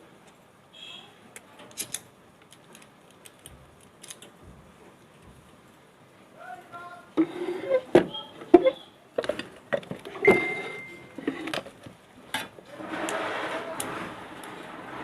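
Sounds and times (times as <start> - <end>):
metal parts clicking and knocking: 1.6 - 4.4.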